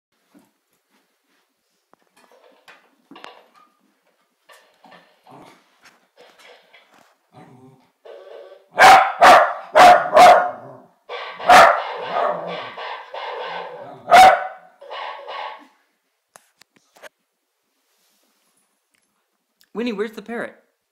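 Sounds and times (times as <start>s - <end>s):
dog barking: 8.7s - 10.8s, 11.4s - 14.7s
dog yapping: 8.7s - 15.6s.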